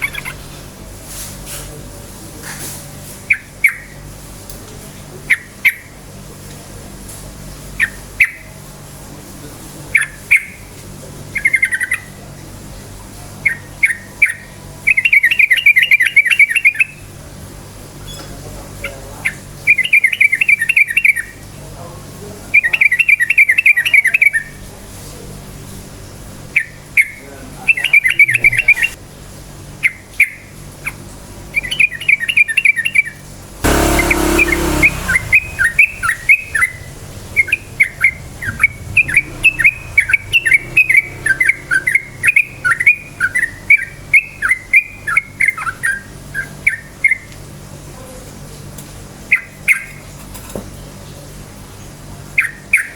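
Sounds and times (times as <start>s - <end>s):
bird singing chattering notes: 0.0s - 0.4s, 26.6s - 29.0s, 34.9s - 46.8s
loud rushing noise: 33.6s - 41.3s.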